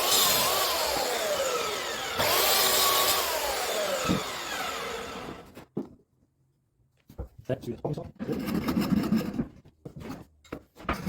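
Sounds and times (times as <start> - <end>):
mitre saw cutting: 0.0 - 5.6.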